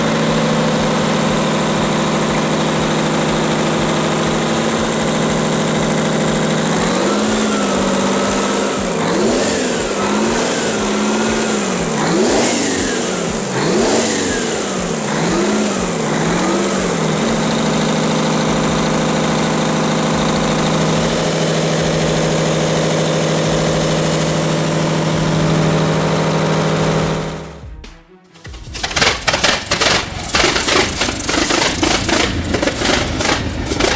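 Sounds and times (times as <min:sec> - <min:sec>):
old engine revving and idling: 0:00.0 - 0:27.7, 0:28.4 - 0:33.9.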